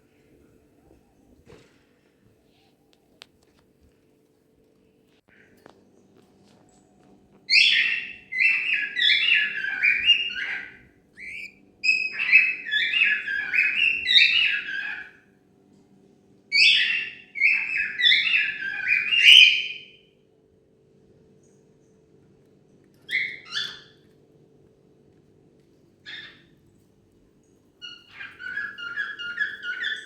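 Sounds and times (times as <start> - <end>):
cockatiel whistling: 7.5 - 15.1, 16.6 - 19.9, 27.8 - 30.0.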